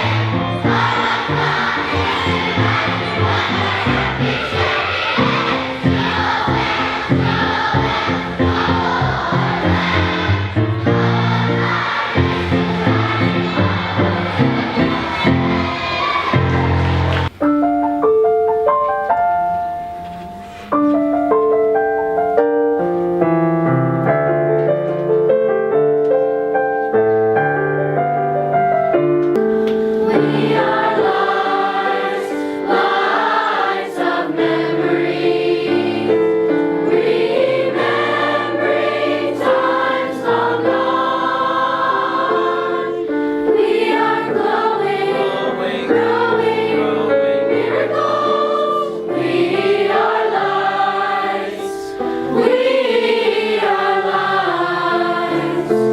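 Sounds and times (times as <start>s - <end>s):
choir singing: 0.0s - 17.3s, 29.9s - 55.9s
piano accompaniment: 0.0s - 55.9s.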